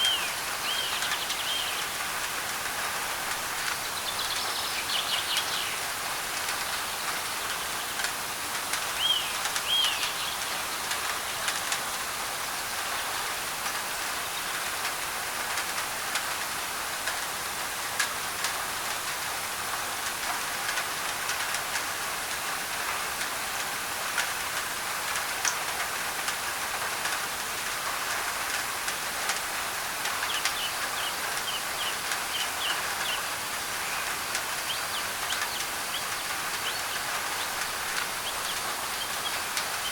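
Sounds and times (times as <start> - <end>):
rain on a tin roof: 0.0 - 39.9
white noise hiss: 0.0 - 39.9
bird chirps: 30.2 - 39.9.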